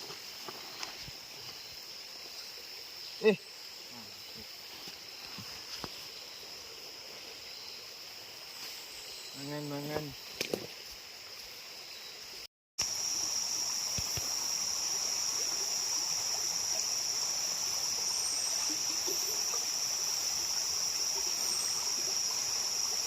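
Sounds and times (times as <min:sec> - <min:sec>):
background hiss: 0:00.0 - 0:23.0
high-pitched insect drone: 0:06.1 - 0:23.0.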